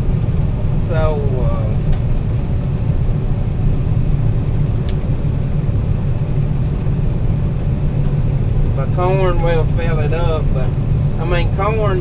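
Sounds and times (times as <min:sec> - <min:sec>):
combine harvester droning: 0:00.0 - 0:12.0.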